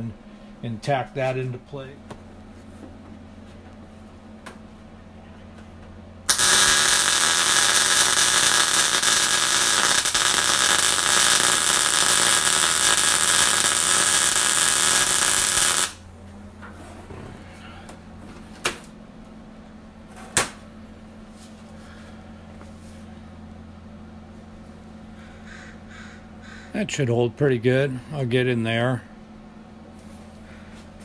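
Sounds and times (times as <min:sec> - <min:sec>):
welding arc crackling hiss: 0:06.3 - 0:16.0.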